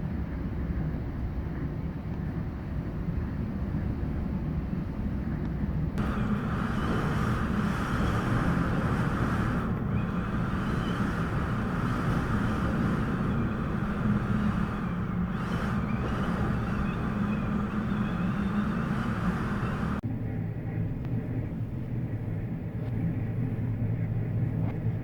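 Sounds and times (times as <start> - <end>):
blizzard wind buffeting microphone: 5.8 - 20.0
faint wavering whistles: 6.0 - 20.0.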